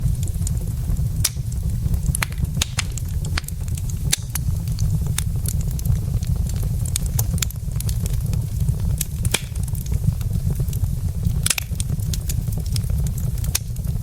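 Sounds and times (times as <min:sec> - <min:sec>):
fire low rumble: 0:00.0 - 0:14.0
logs crackling and popping: 0:00.0 - 0:14.0.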